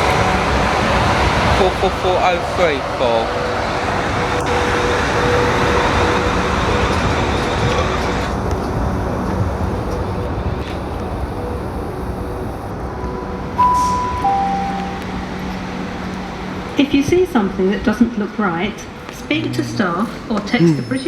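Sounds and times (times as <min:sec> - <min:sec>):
electric train running through: 0:00.0 - 0:21.0
station announcement chime: 0:13.1 - 0:21.0.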